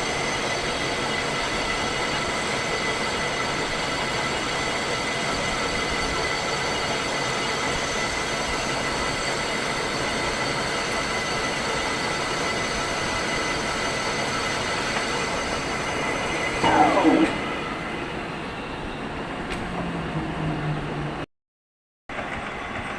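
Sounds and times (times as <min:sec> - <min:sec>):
metal lathe running: 0:11.7 - 0:18.7
sound falling in pitch: 0:16.6 - 0:18.2
high steady tones: 0:16.6 - 0:18.6.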